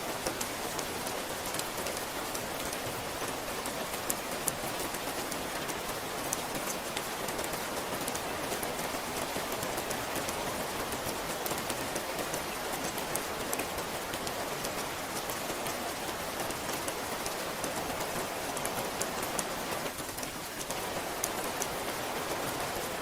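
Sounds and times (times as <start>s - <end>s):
raindrops ticking close by: 0.0s - 23.0s
steady rain falling: 0.0s - 23.0s.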